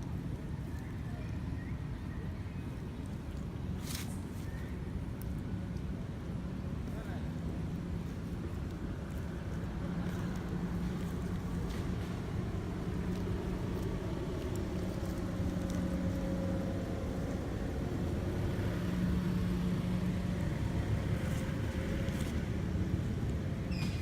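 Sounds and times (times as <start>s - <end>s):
engine-like hum: 0.0s - 24.0s.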